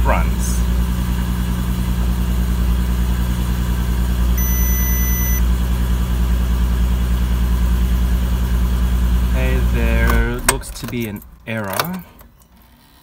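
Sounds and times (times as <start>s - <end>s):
car engine idling: 0.0s - 12.3s
electronic warning beep: 4.4s - 5.4s.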